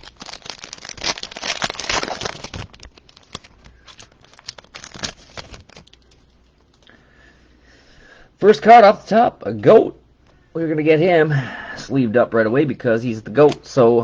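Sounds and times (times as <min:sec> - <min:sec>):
wrapper tearing and crinkling: 0:00.0 - 0:06.3.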